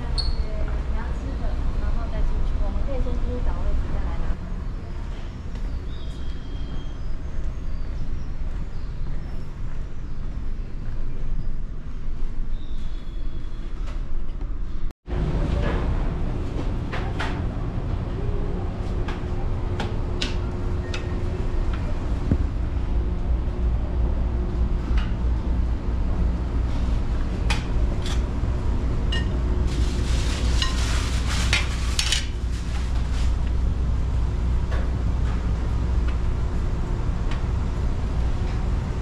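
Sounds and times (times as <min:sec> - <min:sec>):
low engine drone: 0:15.1 - 0:39.0.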